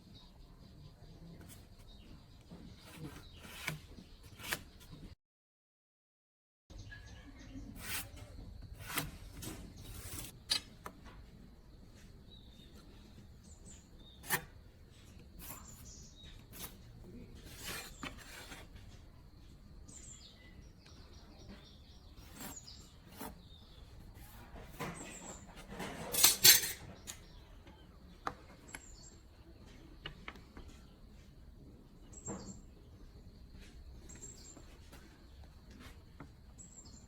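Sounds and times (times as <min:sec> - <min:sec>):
faint birds chirping: 0:00.0 - 0:05.2, 0:06.7 - 0:37.0
metal tools clinking: 0:25.8 - 0:27.0
metal parts clattering: 0:25.9 - 0:26.9.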